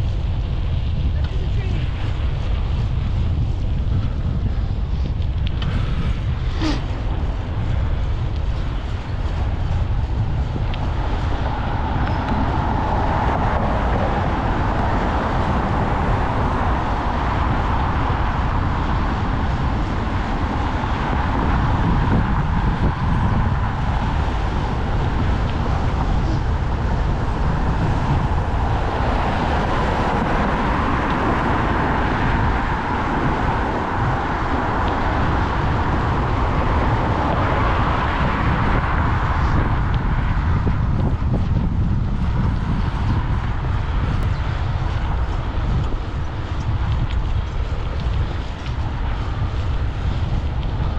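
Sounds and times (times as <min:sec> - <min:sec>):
road and traffic noise: 0:00.0 - 0:50.9
wind rumbling on microphone: 0:00.0 - 0:50.9.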